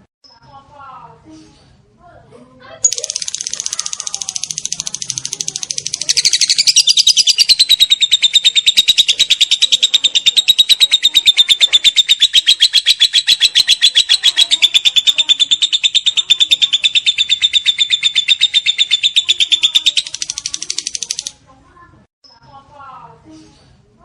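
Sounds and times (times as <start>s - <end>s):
lovebird chattering: 2.8s - 21.4s.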